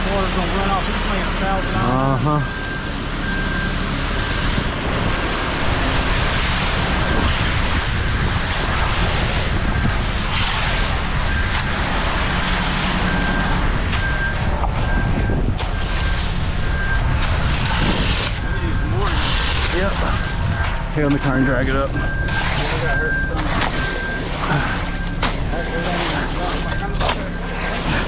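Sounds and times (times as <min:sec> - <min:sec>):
concrete pouring: 0:00.0 - 0:28.0
diesel truck engine running: 0:00.0 - 0:28.0
wind buffeting microphone: 0:04.4 - 0:24.2.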